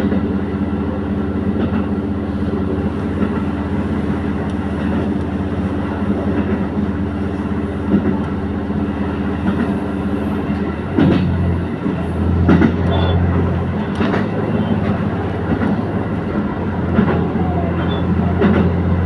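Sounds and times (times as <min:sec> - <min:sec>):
train engine drone: 0:00.0 - 0:19.0
train wheels rumbling: 0:00.0 - 0:19.0
wheel clicks over rail joints: 0:16.9 - 0:18.8.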